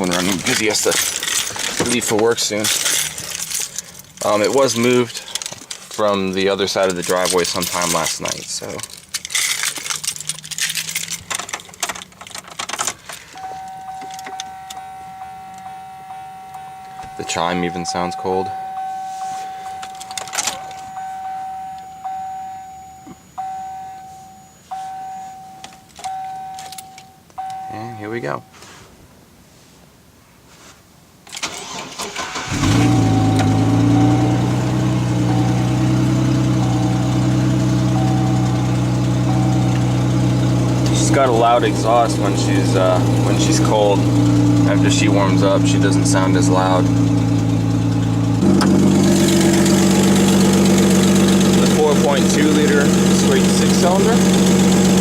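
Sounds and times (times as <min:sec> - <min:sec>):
keys jangling: 0:00.0 - 0:06.0, 0:06.8 - 0:14.6, 0:19.7 - 0:20.9
car warning chime: 0:13.3 - 0:28.6, 0:31.5 - 0:55.0
starter motor cranking: 0:31.4 - 0:55.0
engine idling with loud exhaust: 0:32.5 - 0:55.0.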